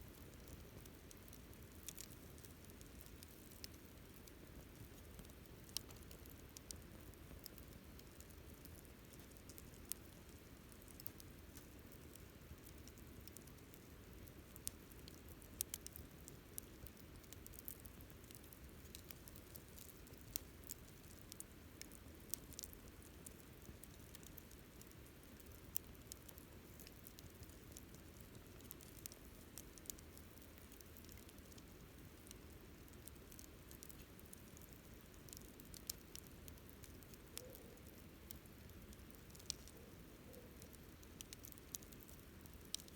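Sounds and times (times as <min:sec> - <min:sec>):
campfire crackling: 0:00.0 - 0:42.9.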